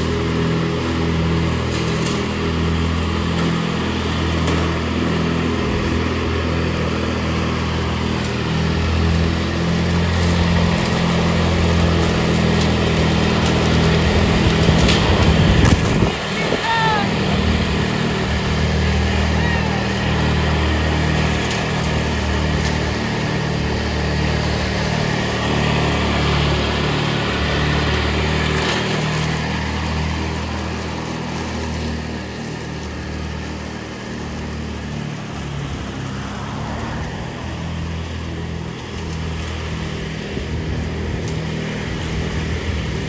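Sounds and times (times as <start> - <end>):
riding lawn mower engine: 0.0 - 43.0.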